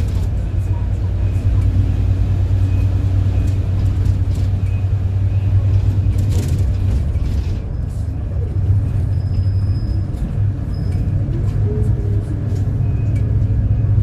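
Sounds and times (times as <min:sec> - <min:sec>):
bus engine drone: 0:00.0 - 0:14.0
road noise: 0:00.0 - 0:14.0.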